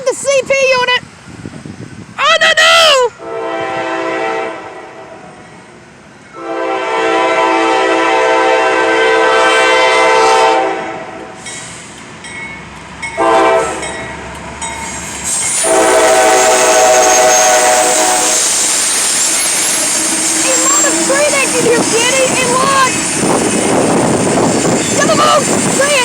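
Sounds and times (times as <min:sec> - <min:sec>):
train wheels and rail noise: 0:00.0 - 0:26.0
locomotive air horn blasts: 0:03.2 - 0:05.4, 0:06.4 - 0:11.4, 0:13.2 - 0:13.9, 0:15.6 - 0:18.7.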